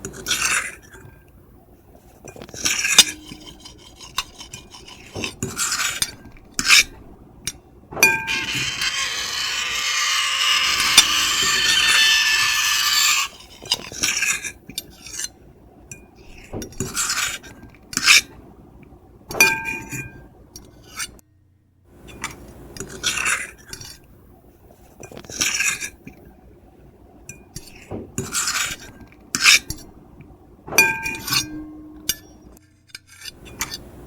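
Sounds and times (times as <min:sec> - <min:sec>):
cutlery scraping on plate: 0:02.2 - 0:07.0, 0:08.0 - 0:15.4, 0:30.8 - 0:33.8.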